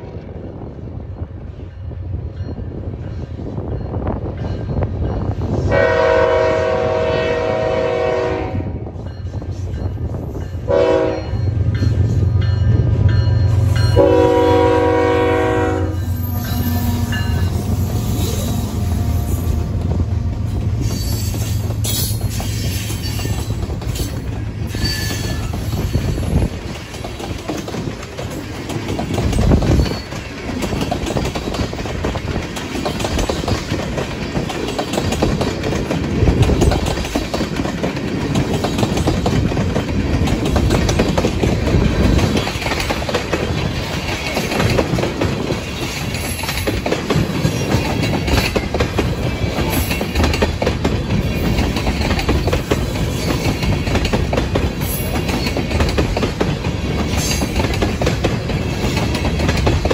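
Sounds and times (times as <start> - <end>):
locomotive engines humming: 0.0 - 59.9
train wheels clattering over rail joints: 16.2 - 59.9.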